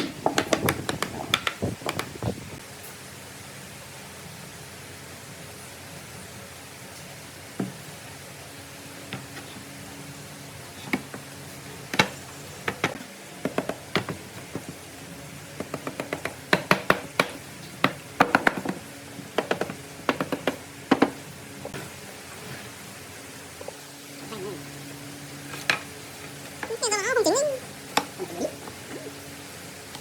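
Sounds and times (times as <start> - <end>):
wooden knocks and taps: 0.0 - 2.4, 11.9 - 14.8, 15.6 - 18.8, 19.4 - 21.2.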